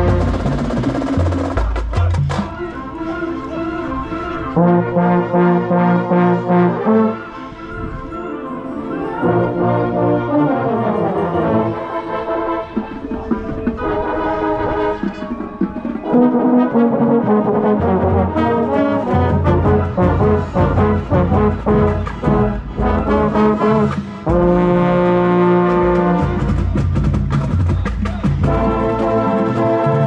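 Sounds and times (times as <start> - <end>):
marching drums: 0.0 - 2.7, 17.3 - 30.0
brass section playing: 0.0 - 30.0.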